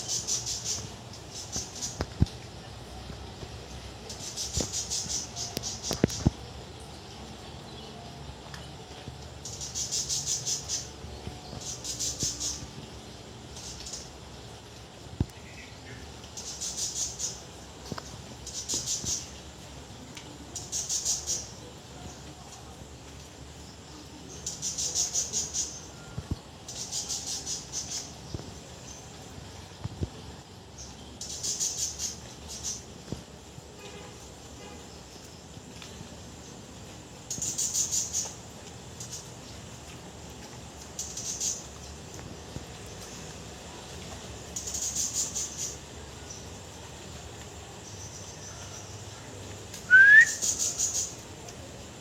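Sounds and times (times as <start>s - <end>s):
bird whistle rising in pitch: 49.9s - 50.6s
bird high ticking notes: 49.9s - 51.1s.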